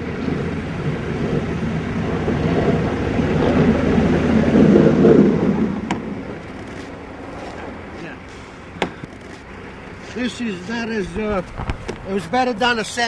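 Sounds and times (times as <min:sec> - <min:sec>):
vehicle passing by: 0:00.0 - 0:08.8.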